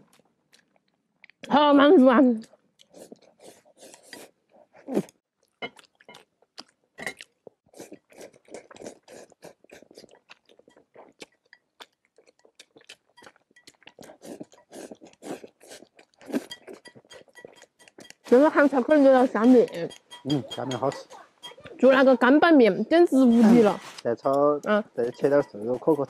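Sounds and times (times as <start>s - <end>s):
person chewing food: 0.0s - 1.5s, 2.4s - 22.1s, 23.8s - 26.0s.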